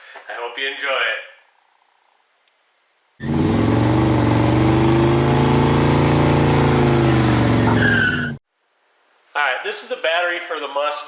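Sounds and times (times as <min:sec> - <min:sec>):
car engine revving: 0:03.2 - 0:08.4.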